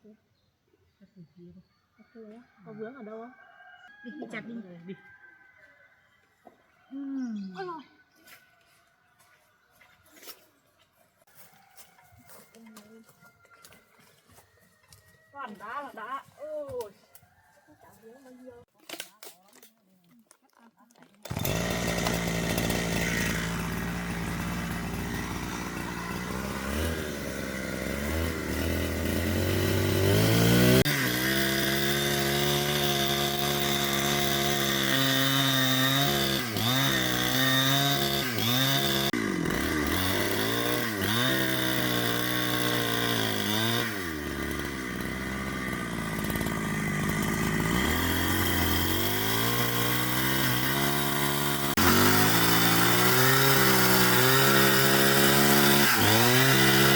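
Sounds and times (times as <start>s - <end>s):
chainsaw cutting wood: 21.1s - 56.9s.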